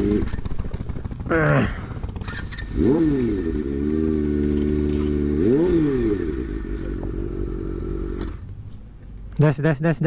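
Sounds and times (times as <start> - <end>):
motorcycle engine revving: 0.0 - 8.5.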